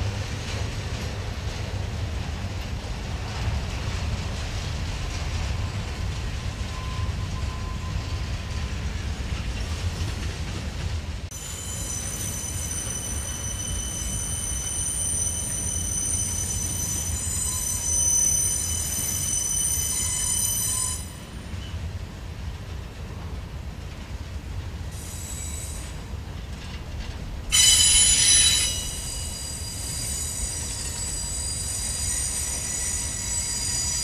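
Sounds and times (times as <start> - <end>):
train wheels rumbling on rail: 0.0 - 34.0
high-pitched wheel squeal: 11.4 - 21.2, 27.5 - 34.0.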